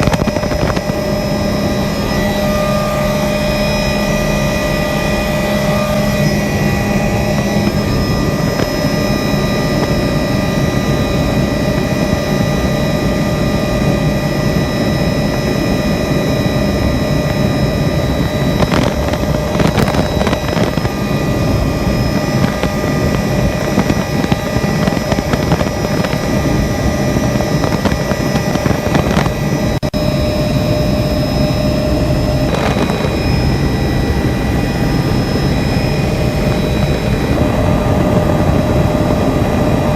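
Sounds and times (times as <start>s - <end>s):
helicopter engine and rotor noise: 0.0s - 39.9s.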